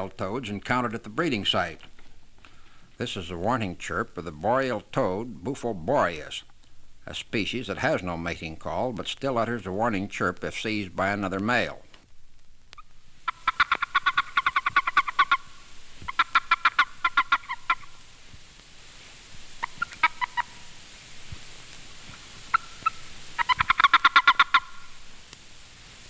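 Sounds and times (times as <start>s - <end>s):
toad chirping: 12.7s - 18.1s, 19.5s - 20.8s, 22.0s - 25.1s.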